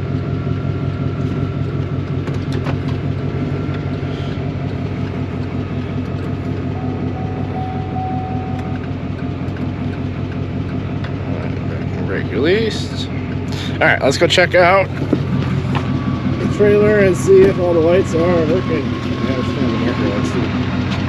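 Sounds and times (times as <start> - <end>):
truck engine idling: 0.0 - 21.0
faint steady tone: 6.8 - 8.9.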